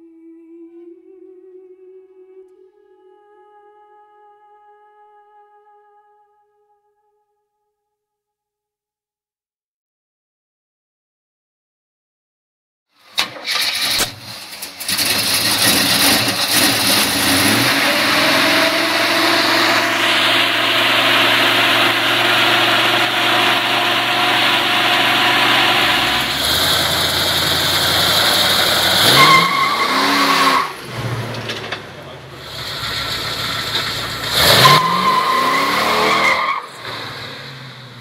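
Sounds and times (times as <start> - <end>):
car engine starting and revving: 13.2 - 38.0.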